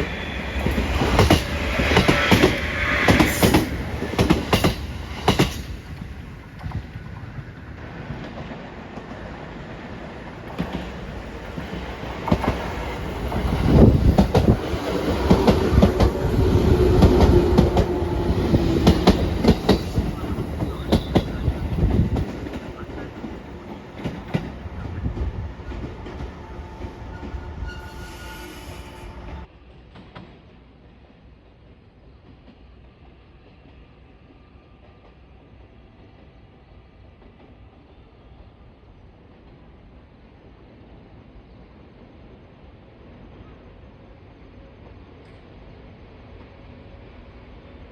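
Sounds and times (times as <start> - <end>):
train wheels clattering on rails: 0.0 - 27.8, 29.7 - 31.4.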